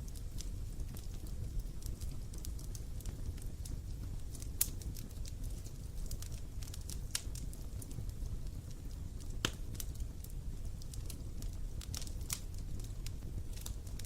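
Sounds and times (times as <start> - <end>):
wood campfire crackling: 0.0 - 14.0.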